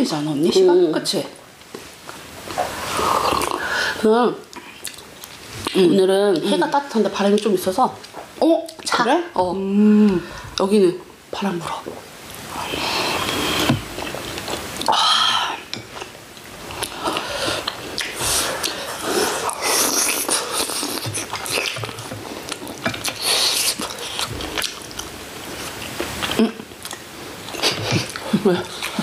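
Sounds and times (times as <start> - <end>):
people chewing chicken: 16.0 - 29.0.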